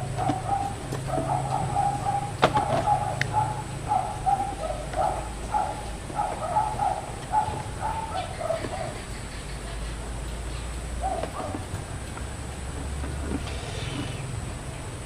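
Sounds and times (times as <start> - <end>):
short animal calls: 13.2 - 14.4.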